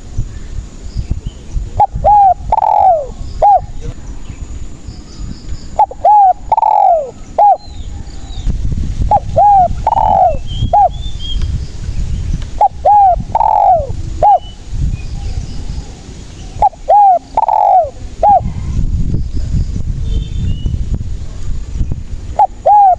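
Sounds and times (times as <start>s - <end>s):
dove cooing: 1.7s - 3.8s, 5.7s - 7.7s, 9.1s - 11.0s, 12.5s - 14.6s, 16.0s - 18.7s, 22.4s - 22.9s.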